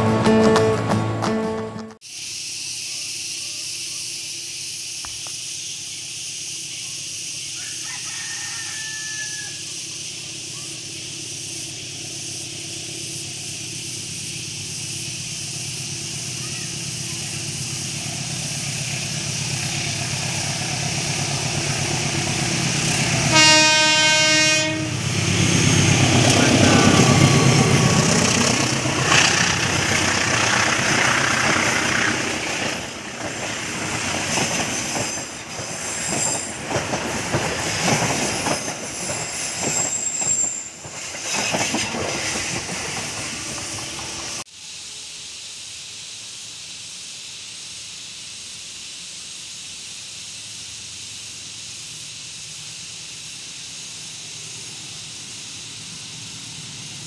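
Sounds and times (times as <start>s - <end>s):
train horn blast: 0.0s - 2.0s, 23.2s - 25.2s
train rumble: 0.0s - 2.0s, 9.5s - 44.5s, 52.8s - 57.0s
wheels clacking over rail joints: 25.8s - 44.1s
wheel squeals: 34.3s - 36.8s, 37.6s - 44.1s.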